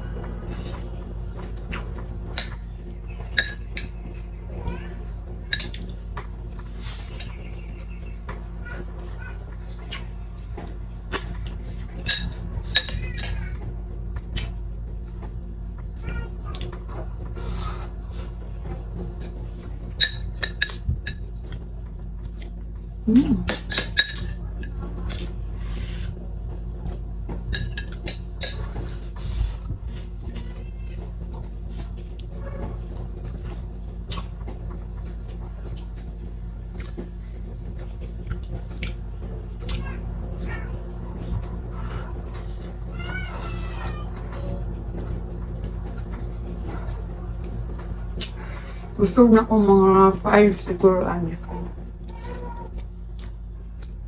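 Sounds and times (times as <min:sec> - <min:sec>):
low steady hum: 0:00.0 - 0:54.0
soft chewing: 0:00.4 - 0:02.6, 0:16.1 - 0:26.1, 0:33.2 - 0:35.9, 0:36.7 - 0:39.0, 0:45.0 - 0:49.0, 0:51.8 - 0:54.0
cutlery and dishes clinking: 0:03.4 - 0:04.0, 0:05.5 - 0:06.0, 0:11.2 - 0:13.6, 0:19.2 - 0:21.3, 0:23.5 - 0:25.2, 0:27.5 - 0:29.2.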